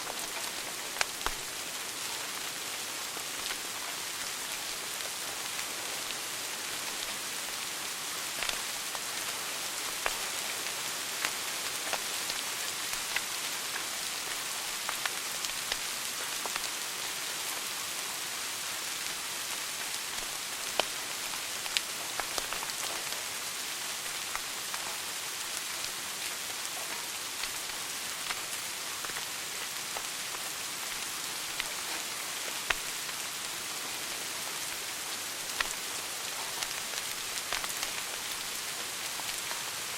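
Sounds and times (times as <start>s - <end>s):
wood fire crackling and popping: 0.1s - 1.5s, 8.4s - 10.2s, 11.2s - 16.7s, 19.8s - 23.2s, 27.4s - 29.3s, 29.9s - 33.2s, 35.4s - 39.6s.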